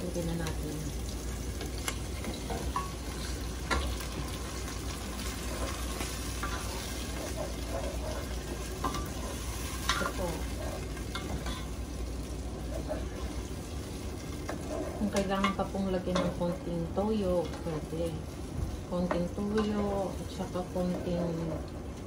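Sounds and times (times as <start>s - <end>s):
food sizzling in a pot: 0.0s - 22.0s
spatula scraping a pot: 2.2s - 11.8s, 12.4s - 13.5s, 14.3s - 15.6s.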